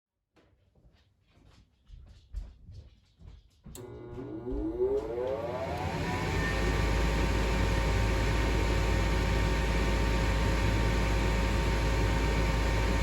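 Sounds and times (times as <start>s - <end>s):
furnace fan motor whine and hum: 3.8s - 13.0s.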